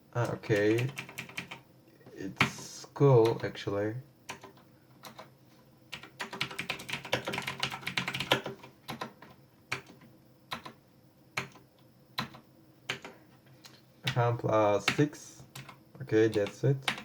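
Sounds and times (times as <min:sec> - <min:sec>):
mechanical keyboard keys clicking: 0:06.0 - 0:10.8, 0:15.6 - 0:17.0.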